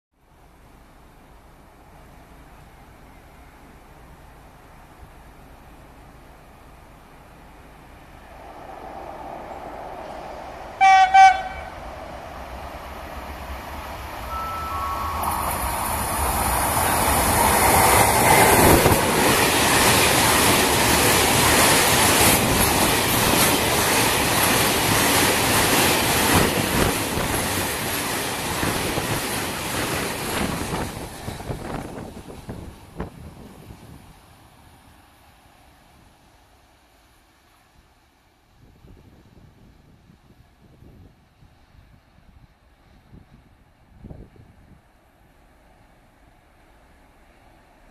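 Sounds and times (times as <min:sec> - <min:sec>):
freight train passing: 0:00.3 - 0:47.9
train horn blasts: 0:10.8 - 0:11.8, 0:14.2 - 0:15.7.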